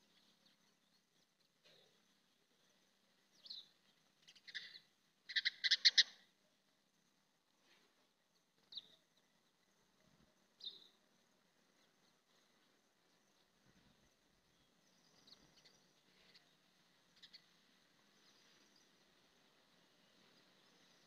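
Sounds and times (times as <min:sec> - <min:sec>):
bird chirping: 0:00.0 - 0:06.3, 0:07.7 - 0:09.6, 0:10.4 - 0:11.0, 0:11.7 - 0:19.2.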